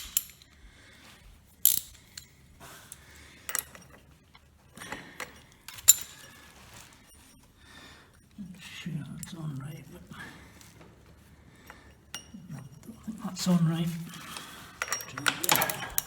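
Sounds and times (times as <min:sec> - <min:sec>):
metallic clicks and knocks: 0:00.0 - 0:00.5, 0:01.6 - 0:02.3, 0:14.2 - 0:16.0
light metal scraping: 0:09.1 - 0:16.0.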